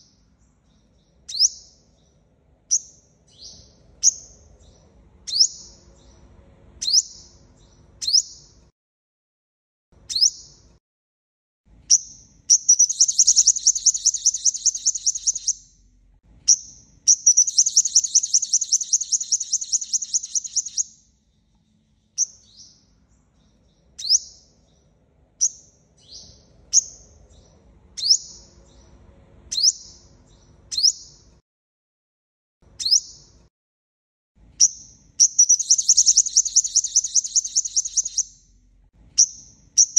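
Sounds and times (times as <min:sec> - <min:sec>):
bird rapid trills: 0:12.5 - 0:15.6, 0:17.1 - 0:20.8, 0:35.2 - 0:38.3
bird high descending chips: 0:12.7 - 0:15.6, 0:17.2 - 0:20.8, 0:35.5 - 0:38.2.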